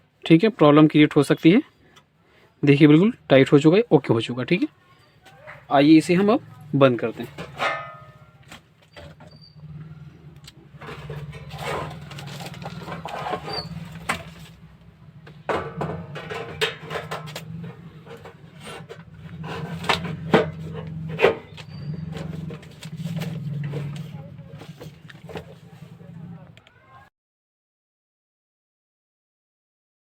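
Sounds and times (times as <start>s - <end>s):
clicks knocks and scrapes on casing: 10.4s - 14.6s, 15.3s - 25.8s.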